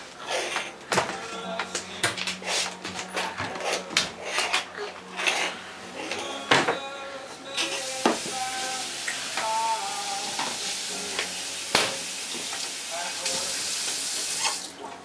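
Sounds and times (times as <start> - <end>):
food sizzling in frying pan: 7.7 - 14.7.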